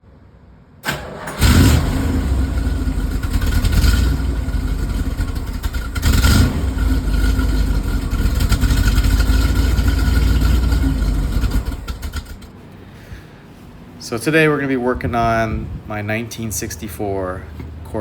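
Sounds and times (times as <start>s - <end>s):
car engine starting and running: 0.8s - 12.6s
engine throttle blips: 0.8s - 12.8s.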